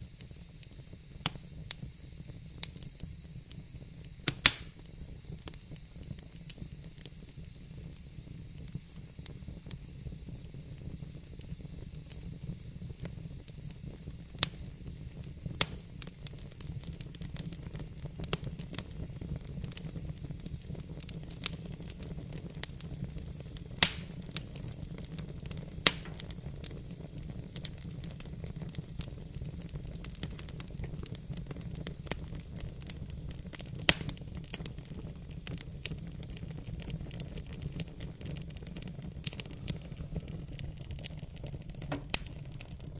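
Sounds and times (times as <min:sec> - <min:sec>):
fire crackles and pops: 0:00.0 - 0:42.9
fire rumbling and hissing: 0:00.0 - 0:42.9.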